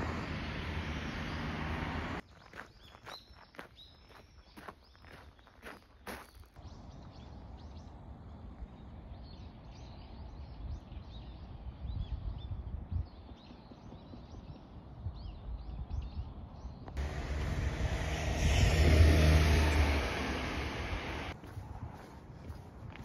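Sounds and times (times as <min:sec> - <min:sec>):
small birds chirping and twittering: 0:00.9 - 0:17.4
low outdoor rumble: 0:17.0 - 0:21.4.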